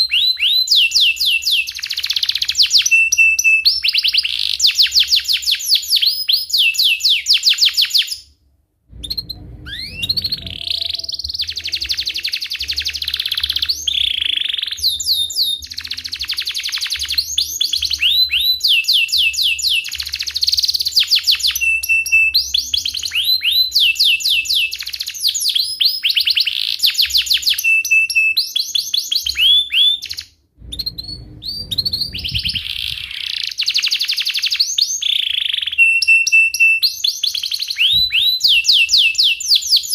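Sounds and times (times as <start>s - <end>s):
canary singing trills: 9.0s - 39.9s.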